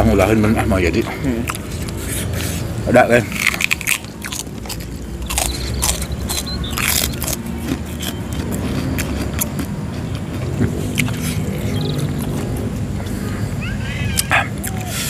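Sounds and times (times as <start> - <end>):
biting and chewing food: 0.0 - 15.0
mouth clicks: 3.3 - 13.2, 14.1 - 15.0.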